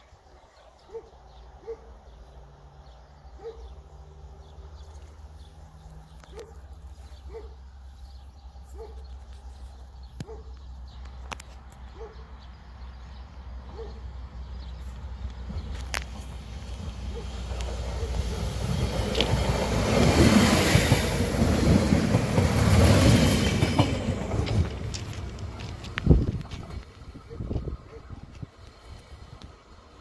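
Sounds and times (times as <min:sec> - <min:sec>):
train approaching rumble: 0:12.6 - 0:30.0.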